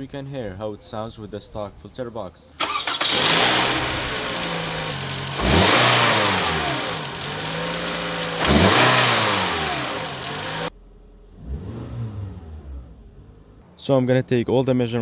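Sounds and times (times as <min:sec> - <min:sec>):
car engine idling and revving: 0:02.6 - 0:13.8.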